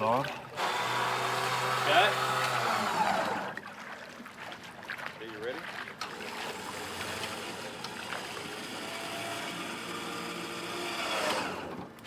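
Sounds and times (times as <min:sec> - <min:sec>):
small electric motor whining: 0:00.6 - 0:03.6, 0:06.0 - 0:11.9.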